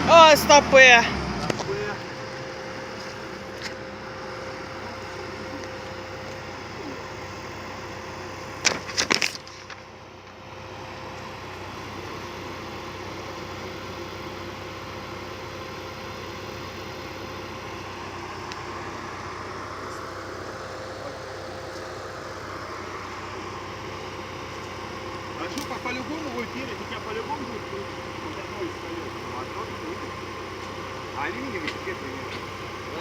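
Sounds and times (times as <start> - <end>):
vehicle engine idling: 0.0 - 33.0.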